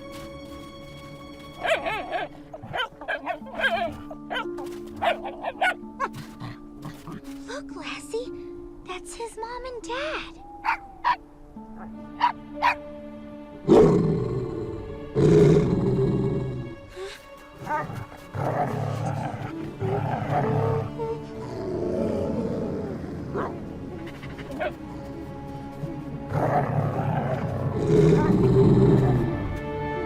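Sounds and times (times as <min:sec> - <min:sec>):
tense music score: 0:00.0 - 0:30.0
cartoon wolves growling: 0:01.6 - 0:07.3, 0:17.6 - 0:29.4.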